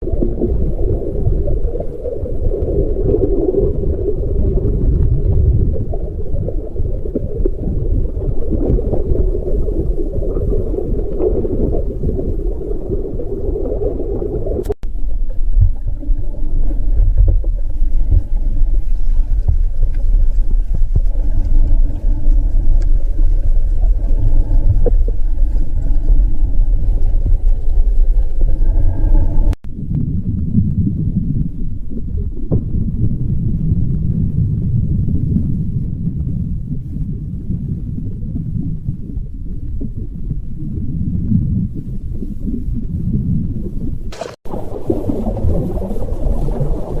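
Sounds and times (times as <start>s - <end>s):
loud low rumble: 14.4s - 38.3s.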